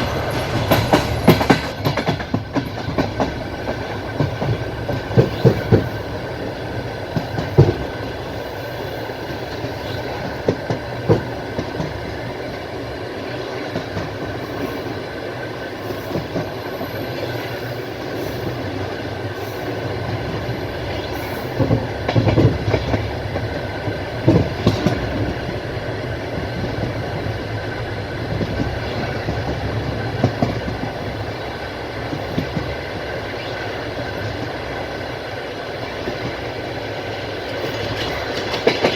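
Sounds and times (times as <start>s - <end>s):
wheels clattering over rail joints: 0.0s - 8.2s, 37.2s - 38.9s
train wheels rumbling on track: 0.0s - 38.9s.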